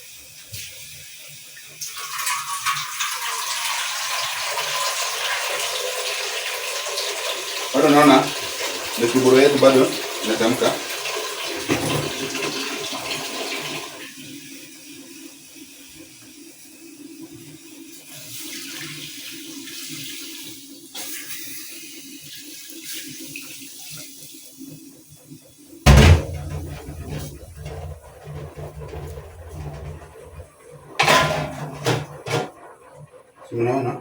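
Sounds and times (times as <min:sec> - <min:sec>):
loud bump: 0:25.9 - 0:30.4
water rushing and bubbling: 0:25.9 - 0:30.9.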